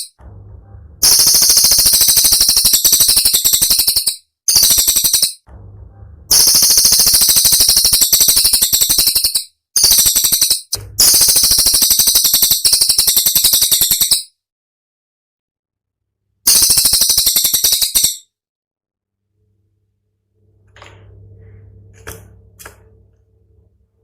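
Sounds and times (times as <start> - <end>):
bird song high-pitched notes: 1.0 - 5.5, 6.3 - 14.3, 16.5 - 18.3.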